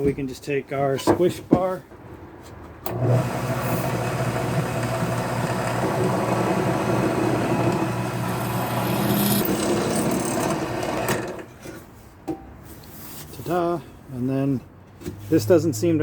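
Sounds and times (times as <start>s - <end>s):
electric drill boring into metal: 2.9s - 11.5s.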